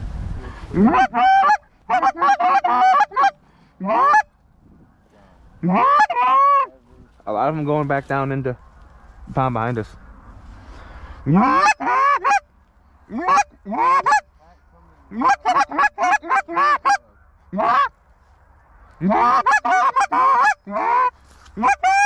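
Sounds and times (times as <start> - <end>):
goose honking: 0.7 - 4.3, 5.6 - 6.8, 11.2 - 14.4, 15.0 - 18.0, 19.0 - 22.0
goose clucking: 0.7 - 4.4, 5.6 - 6.8, 11.2 - 18.0, 19.0 - 22.0.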